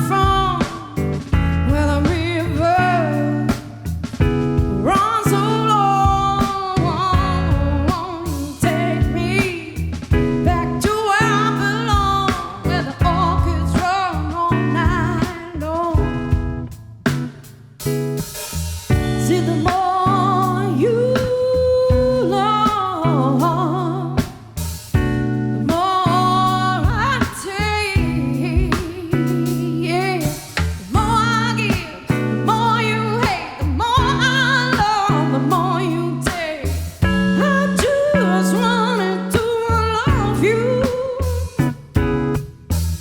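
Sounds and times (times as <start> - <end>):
person singing: 0.0 - 3.8, 4.7 - 16.2, 19.0 - 24.5, 25.7 - 41.9
guitar: 0.0 - 43.0.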